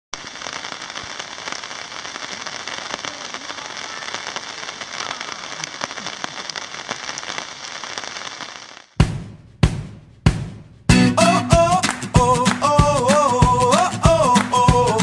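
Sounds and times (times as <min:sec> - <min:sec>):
rain pattering on tent: 0:00.2 - 0:09.0.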